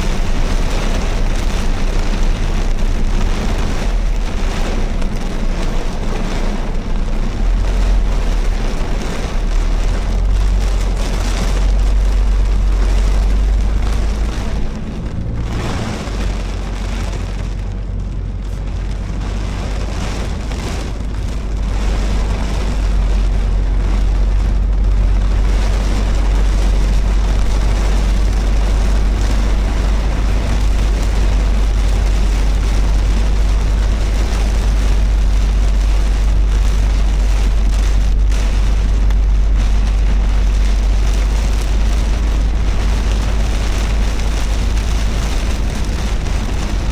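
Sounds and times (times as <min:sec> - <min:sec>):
car engine rumble: 0:00.0 - 0:46.9
rain and tyres on wet road: 0:00.0 - 0:46.9.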